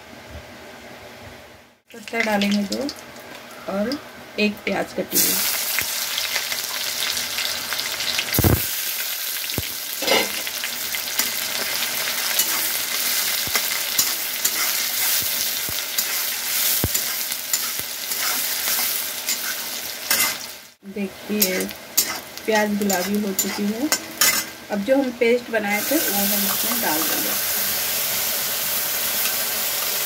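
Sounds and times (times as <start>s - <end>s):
onion sizzling in oil: 1.9s - 30.0s
metal spatula scraping pan: 10.0s - 10.5s, 12.3s - 15.2s, 16.0s - 20.5s, 21.4s - 24.6s.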